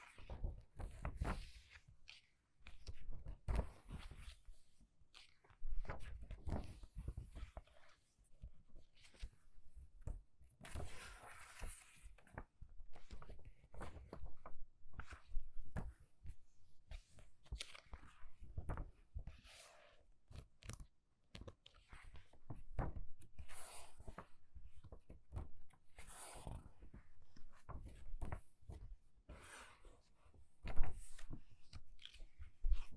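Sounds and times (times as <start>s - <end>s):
book pages flipping: 0.0s - 8.1s, 10.6s - 16.1s, 16.9s - 32.9s
page swishing over: 29.3s - 31.4s.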